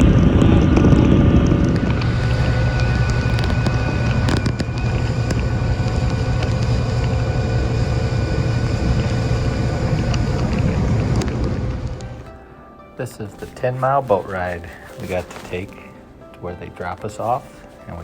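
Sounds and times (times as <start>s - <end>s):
wind on microphone: 0.0s - 12.3s
motorboat engine droning: 0.0s - 18.0s.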